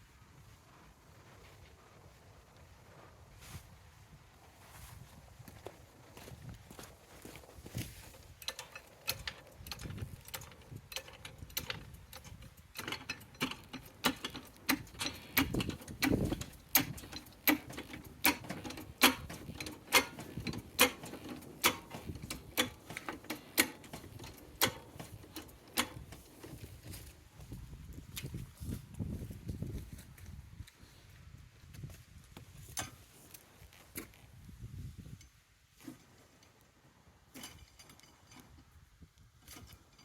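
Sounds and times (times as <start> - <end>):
hand tool clicking: 8.3 - 27.0.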